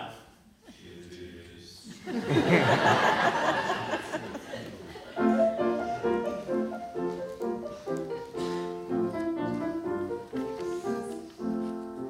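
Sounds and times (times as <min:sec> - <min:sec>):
piano playing detached chords: 0:05.2 - 0:12.0.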